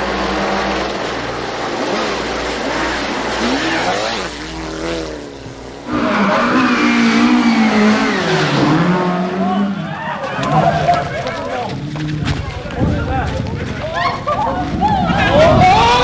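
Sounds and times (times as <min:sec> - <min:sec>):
rally car engine revving: 0:00.0 - 0:12.8
tyre and road noise: 0:00.0 - 0:16.0.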